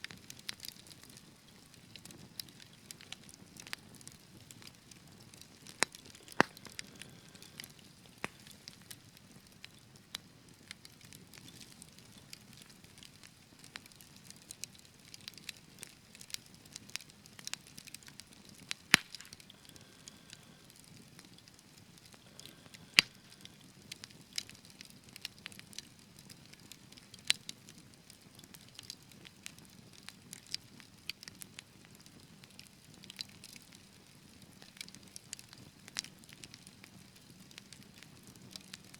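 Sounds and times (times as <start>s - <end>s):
fire crackling in a fireplace: 0.0s - 38.9s
loud wood pops: 18.9s - 19.4s.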